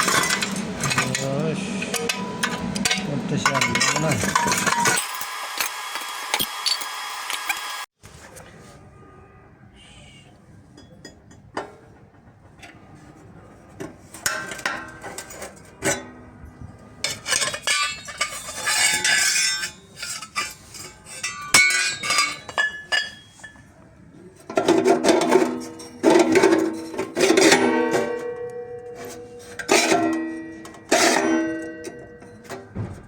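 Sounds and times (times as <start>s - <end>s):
hand tools tapping on metal: 0.0s - 7.9s, 17.0s - 23.8s, 24.4s - 33.0s.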